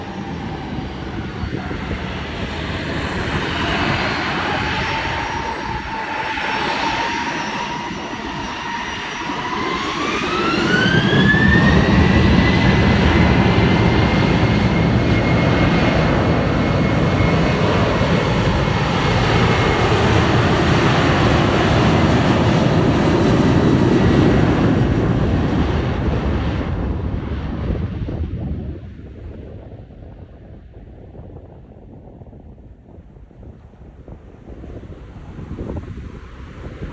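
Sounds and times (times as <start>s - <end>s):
jet engines spooling up: 0.0s - 25.8s
rising engine whine: 0.0s - 27.7s
jet engine roar: 0.0s - 36.9s.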